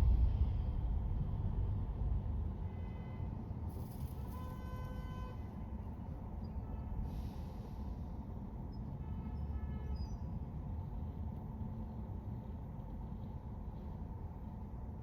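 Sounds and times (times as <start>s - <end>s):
car driving rumble: 0.0s - 2.9s
car horn toot: 4.2s - 5.6s.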